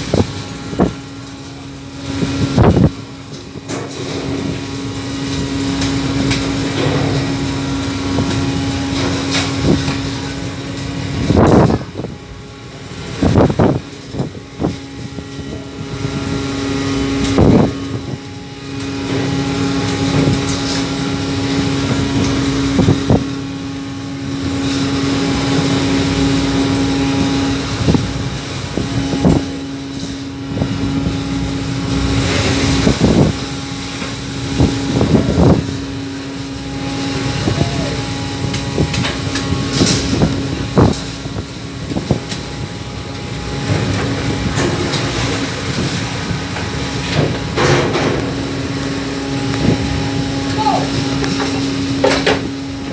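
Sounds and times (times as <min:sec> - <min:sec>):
boat engine droning: 0:00.0 - 0:52.9
waves crashing on hull: 0:00.0 - 0:52.9
rushing water and wind: 0:24.3 - 0:52.9.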